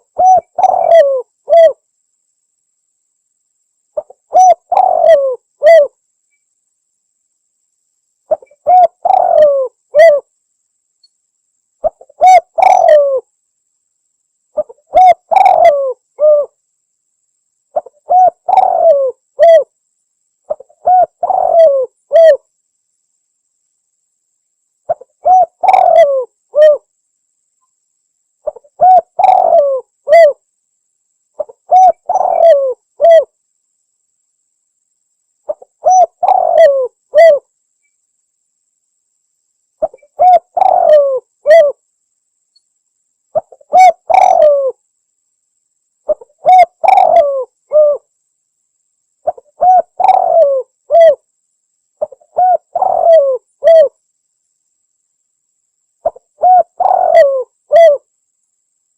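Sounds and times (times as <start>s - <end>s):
dove cooing: 0.0s - 1.8s, 4.0s - 6.0s, 8.3s - 10.3s, 11.8s - 13.3s, 14.6s - 16.6s, 17.8s - 19.7s, 20.5s - 22.4s, 24.9s - 26.9s, 28.4s - 30.4s, 31.4s - 33.3s, 35.5s - 37.5s, 39.8s - 41.8s, 43.4s - 44.8s, 46.1s - 48.1s, 49.2s - 51.2s, 52.0s - 54.0s, 56.0s - 58.1s.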